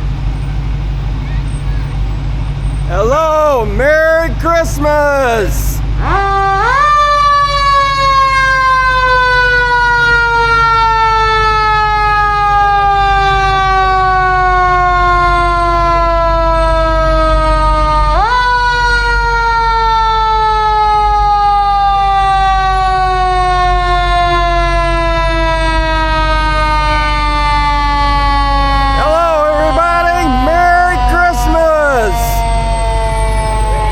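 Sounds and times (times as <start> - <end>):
emergency vehicle siren: 0.0 - 33.9.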